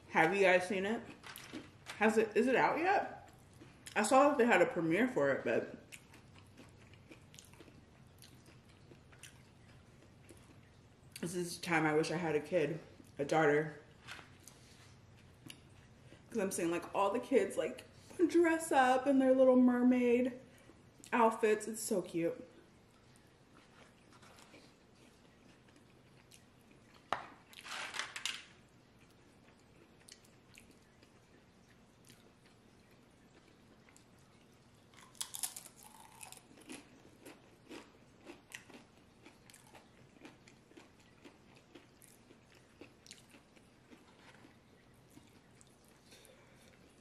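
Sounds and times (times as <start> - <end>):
tortilla chip crunch: 1.0 - 2.1, 5.9 - 10.6, 23.6 - 31.1, 34.8 - 47.0
crunchy chewing: 5.8 - 10.8, 22.9 - 27.6, 29.0 - 47.0.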